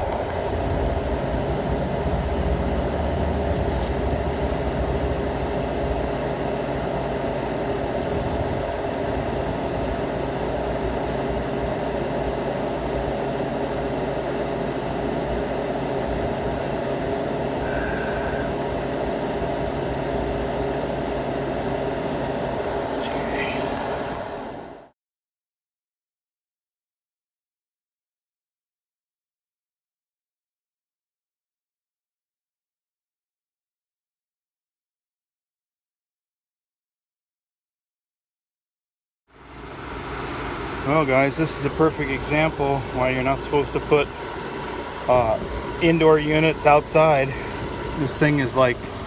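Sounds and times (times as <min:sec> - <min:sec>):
low rumble: 0:00.0 - 0:06.2
machinery humming: 0:00.0 - 0:24.9, 0:39.4 - 0:49.0.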